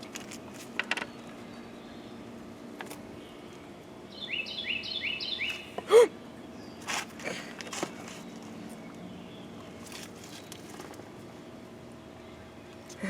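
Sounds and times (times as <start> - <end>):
bird chirping: 4.1 - 5.8.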